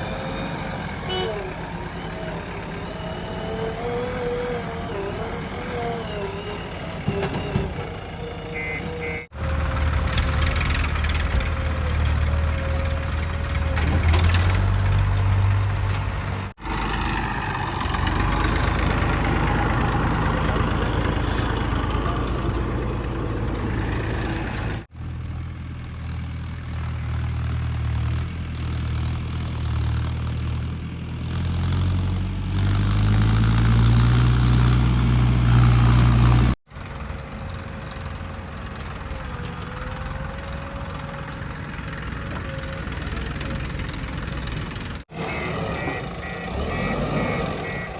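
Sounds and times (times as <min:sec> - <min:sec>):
heavy diesel engine revving: 0:00.0 - 0:24.9, 0:28.8 - 0:36.6, 0:39.6 - 0:47.9.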